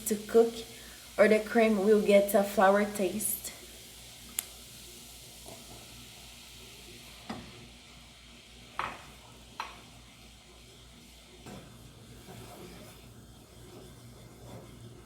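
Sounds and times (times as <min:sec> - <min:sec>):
roux sizzling in a pan: 0:00.0 - 0:15.0
utensil scraping a pan: 0:12.1 - 0:15.0.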